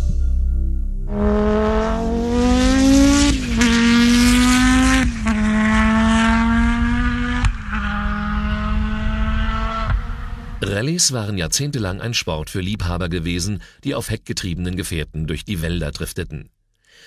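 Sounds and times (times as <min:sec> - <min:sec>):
rally car engine accelerating: 0:01.1 - 0:10.7.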